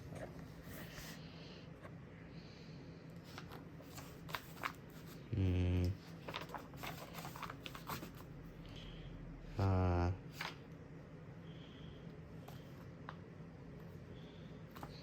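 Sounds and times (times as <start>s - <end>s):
paper rustling: 3.2s - 5.2s, 6.0s - 8.3s.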